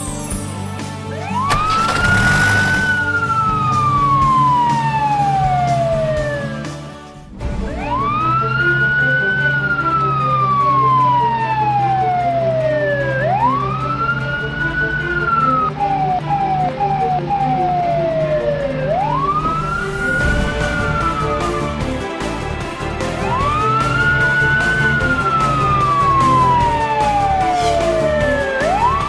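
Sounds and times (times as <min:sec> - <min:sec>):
steady low drone: 0:00.8 - 0:29.0
siren wailing: 0:01.2 - 0:06.8, 0:07.4 - 0:29.0.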